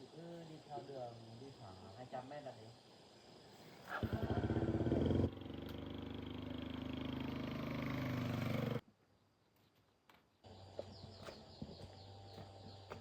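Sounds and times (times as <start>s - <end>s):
small motorcycle engine: 3.9s - 8.8s.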